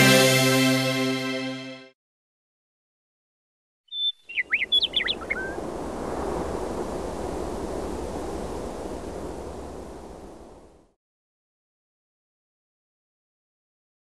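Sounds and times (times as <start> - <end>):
bird chirps and whistles: 3.9 - 5.6.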